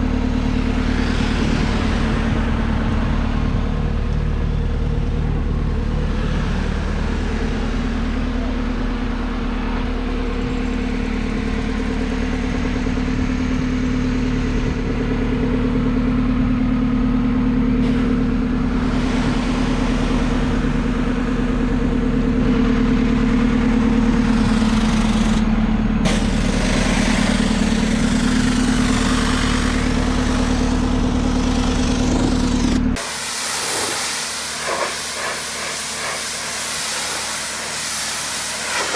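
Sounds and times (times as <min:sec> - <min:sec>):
hissing water spray: 0:17.8 - 0:21.2, 0:33.0 - 0:38.9
machine humming: 0:33.0 - 0:38.9.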